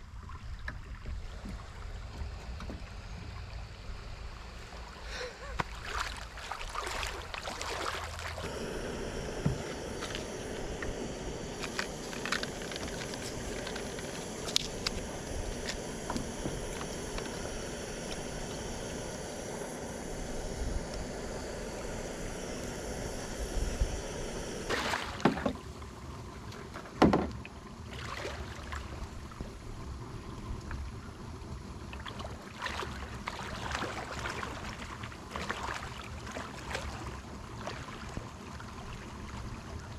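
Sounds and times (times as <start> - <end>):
water moving around kayak: 0.0 - 39.9
steady hiss: 7.2 - 26.1.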